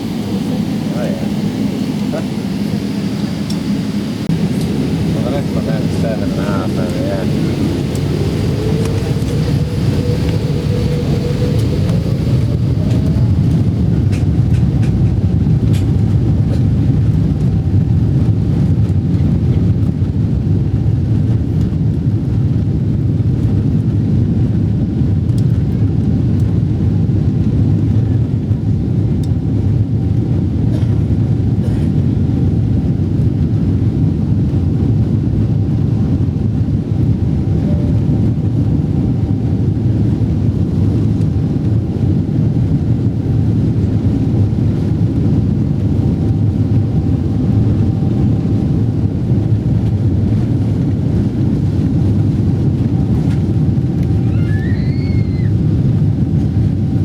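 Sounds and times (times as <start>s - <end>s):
airplane cabin airflow and engine noise: 0.0s - 57.0s.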